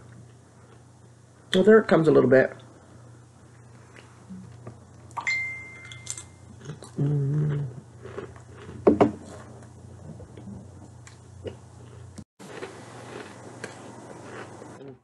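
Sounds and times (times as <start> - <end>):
person humming mmm: 4.3 - 4.6, 6.6 - 7.9, 14.8 - 15.0
person chewing crunchy chip: 6.0 - 15.0.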